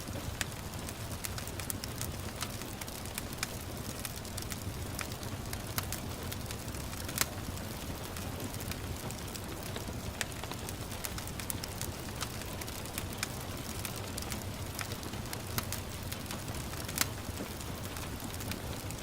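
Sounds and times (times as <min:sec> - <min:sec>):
gentle rain: 0:00.0 - 0:19.0
wood fire crackling: 0:00.0 - 0:19.0.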